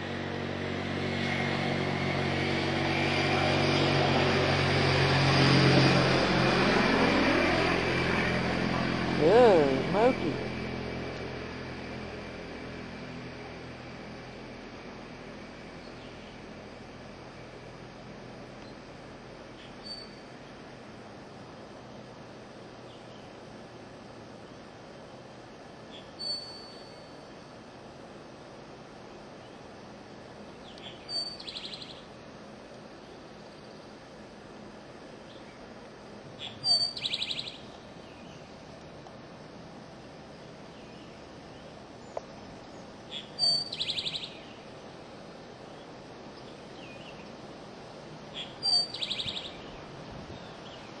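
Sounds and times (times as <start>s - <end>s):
background hiss: 6.2s - 51.0s
bird singing with trill: 19.7s - 20.2s, 26.0s - 27.1s, 30.7s - 32.0s, 36.4s - 38.4s, 42.7s - 44.6s, 48.4s - 49.8s.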